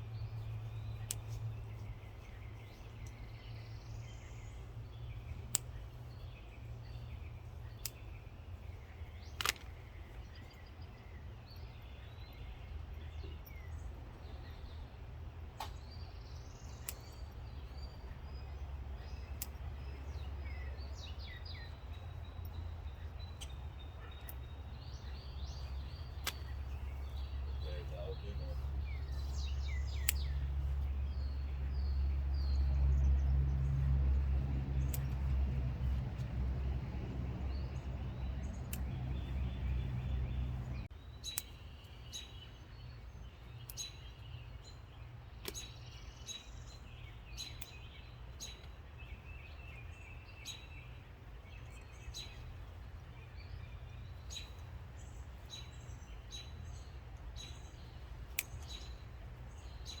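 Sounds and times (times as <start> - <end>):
wild birds chirping: 0.0 - 60.0
sharp clicks: 9.2 - 10.6, 16.8 - 17.6, 23.2 - 27.8, 28.8 - 31.0, 34.2 - 36.8, 37.5 - 41.6, 45.4 - 45.7, 57.4 - 59.0
heavy low rumble: 25.1 - 40.9.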